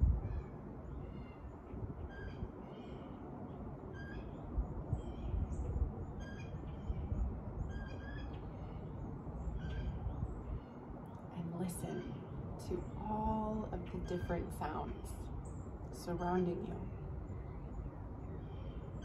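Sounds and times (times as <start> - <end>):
steady low rumble: 0.0 - 19.0
faint bird chirps: 0.2 - 19.0
bird calling: 7.7 - 10.8.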